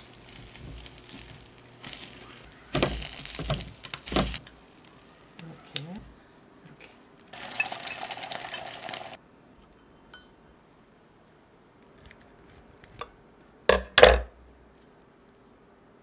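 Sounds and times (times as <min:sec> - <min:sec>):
utensils scraping and stirring: 0:00.0 - 0:09.8
light dish clinks: 0:09.7 - 0:10.6.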